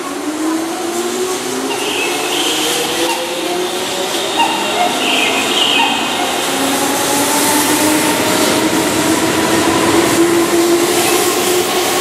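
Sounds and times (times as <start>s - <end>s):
wheel and rail noise: 0.0s - 12.0s
traction motors whining: 0.8s - 10.2s.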